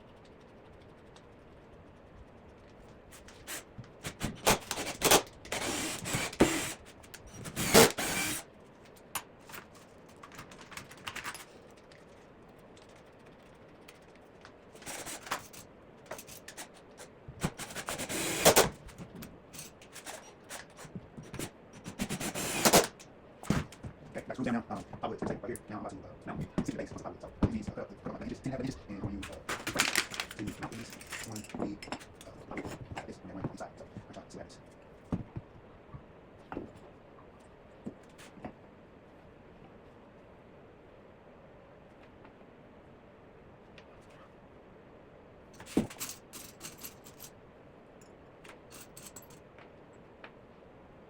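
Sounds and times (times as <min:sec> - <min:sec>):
power drill driving screws: 0:04.1 - 0:08.4, 0:17.4 - 0:18.7, 0:22.0 - 0:23.0.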